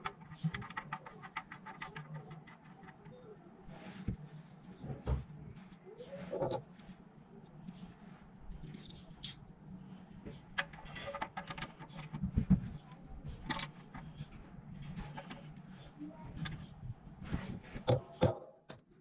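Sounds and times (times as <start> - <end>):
steady low hum: 0.0 - 18.2.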